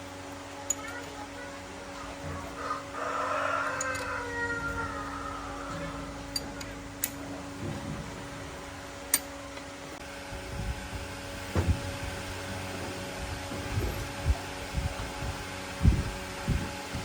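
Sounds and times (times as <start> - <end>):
steady mechanical hum: 0.0 - 17.0
sharp metallic clicks: 3.8 - 4.2, 5.7 - 7.7, 9.0 - 9.7.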